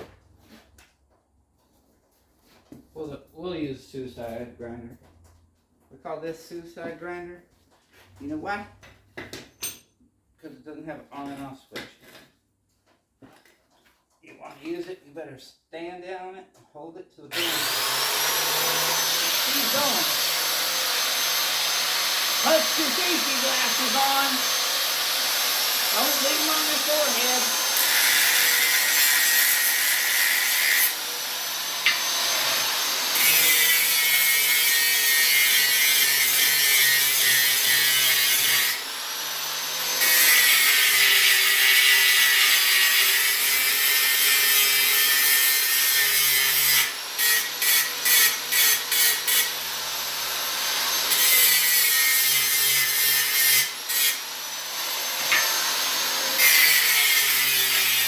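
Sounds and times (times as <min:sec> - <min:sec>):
grinder grinding steel: 0:17.3 - 0:58.0.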